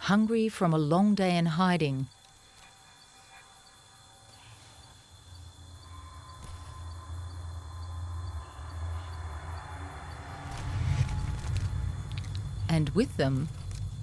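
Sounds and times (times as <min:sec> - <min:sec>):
insect chorus buzzing: 0:00.0 - 0:14.0
low hum: 0:03.7 - 0:14.0.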